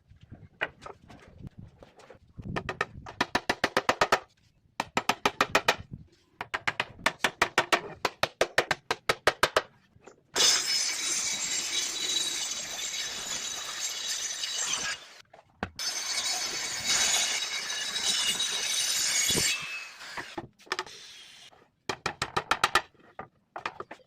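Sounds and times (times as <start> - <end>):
circular saw cutting wood: 10.4 - 15.2, 15.8 - 21.5.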